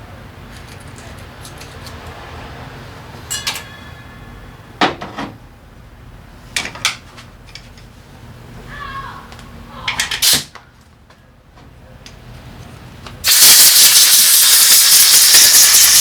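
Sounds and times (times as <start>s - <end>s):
metal tools clinking: 3.3s - 4.4s.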